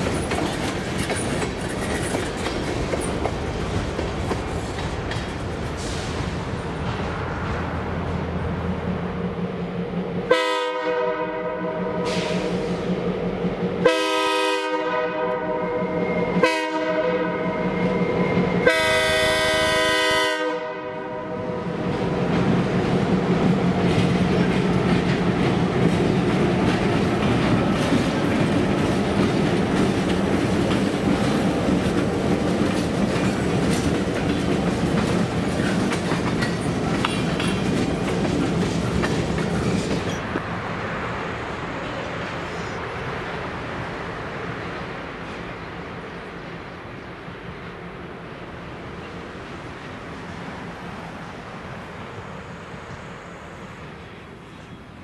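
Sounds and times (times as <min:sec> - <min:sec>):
steel wheels clattering on rails: 0:00.0 - 0:07.6, 0:21.8 - 0:40.2
locomotive horn blasts: 0:10.3 - 0:12.4, 0:13.8 - 0:17.7, 0:18.6 - 0:21.5.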